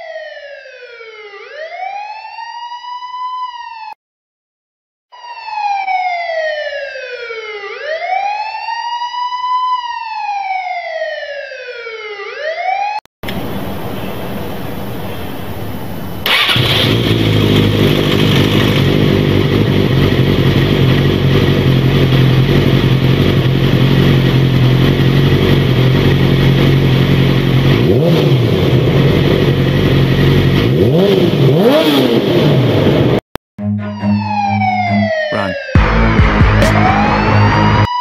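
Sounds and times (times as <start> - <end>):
motorcycle engine revving: 13.3 - 33.2.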